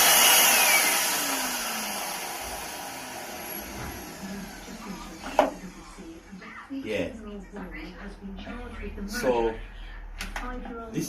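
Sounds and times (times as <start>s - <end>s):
vacuum cleaner motor winding down: 0.0s - 6.4s.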